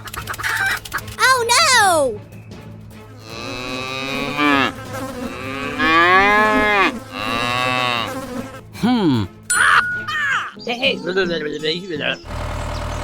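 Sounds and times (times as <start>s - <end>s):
cow mooing: 3.2s - 8.4s.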